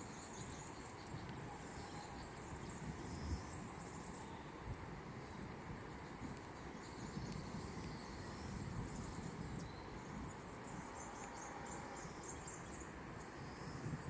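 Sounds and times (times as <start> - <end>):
low rumble of wind: 0.0 - 14.0.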